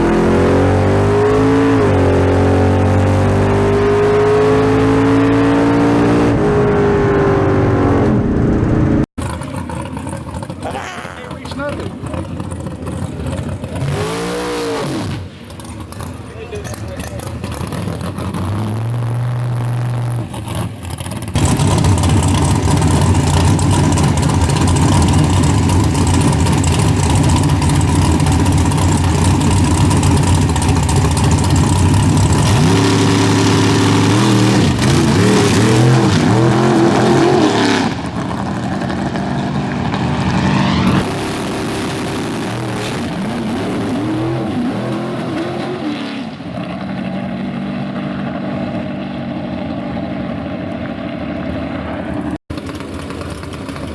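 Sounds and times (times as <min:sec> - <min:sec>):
race car engine revving: 0:00.0 - 0:50.3.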